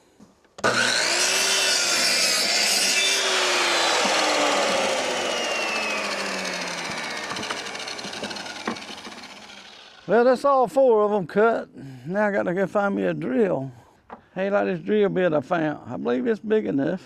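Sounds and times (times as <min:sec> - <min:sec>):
electric saw cutting wood: 0:00.6 - 0:10.2
saw blade spinning down: 0:00.6 - 0:10.3.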